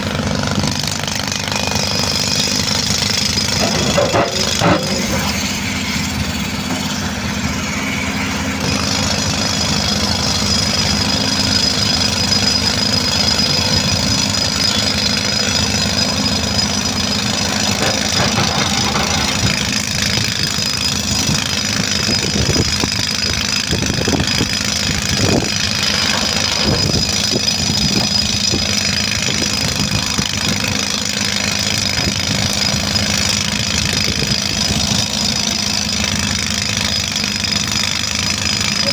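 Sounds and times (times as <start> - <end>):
heavy diesel engine running: 0.0 - 38.9
sharp knocks or clanks: 3.5 - 6.0, 17.3 - 19.8.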